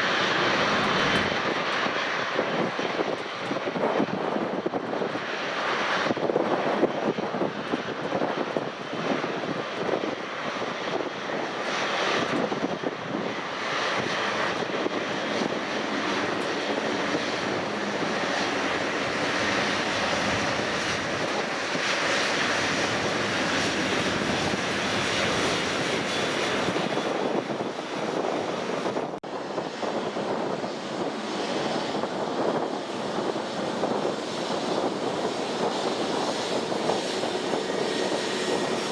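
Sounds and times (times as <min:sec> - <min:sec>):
airliner engine rumble: 0:00.0 - 0:38.9.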